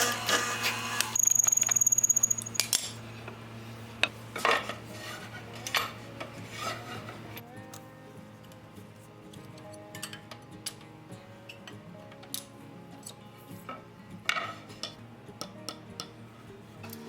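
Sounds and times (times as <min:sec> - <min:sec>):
fast ticking rattle: 0:01.2 - 0:02.6
tools clinking and knocking: 0:01.2 - 0:03.0.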